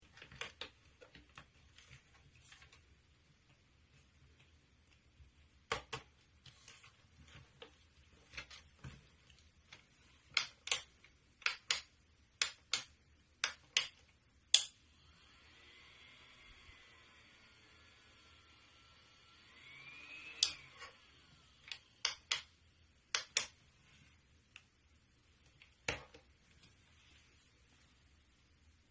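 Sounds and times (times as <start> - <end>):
small fan motor whirring: 14.8 - 22.0.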